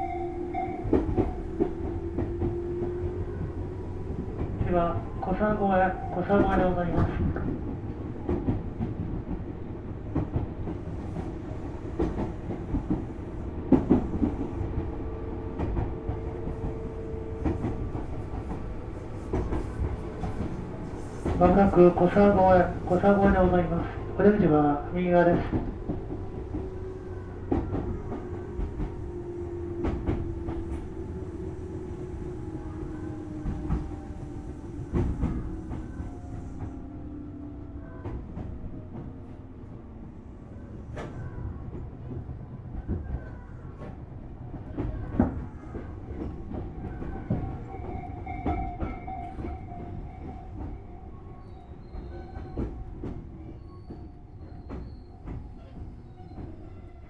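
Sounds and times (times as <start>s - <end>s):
train running gear whine: 0.0s - 42.2s
train rumble: 0.0s - 57.0s
wheels clicking over rail joints: 10.1s - 39.2s.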